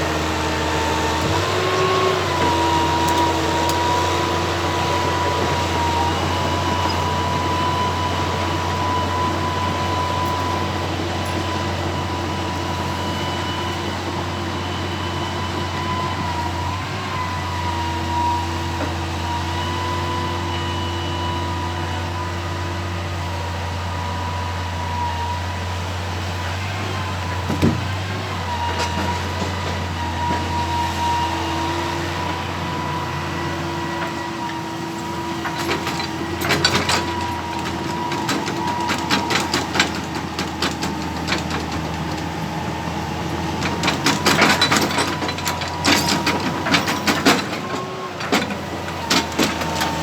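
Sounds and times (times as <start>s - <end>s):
excavator engine running: 0.0s - 50.0s.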